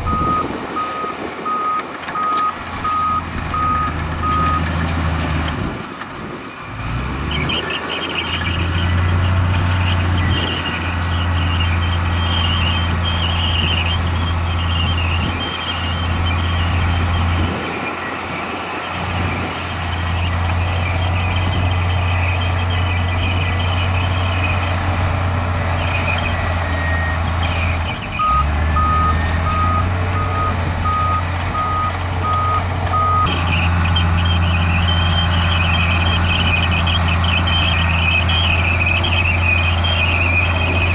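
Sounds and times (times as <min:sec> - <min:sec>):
heavy diesel engines running: 0:00.0 - 0:40.9
reversing alarm beeps: 0:00.1 - 0:04.6, 0:28.2 - 0:33.3.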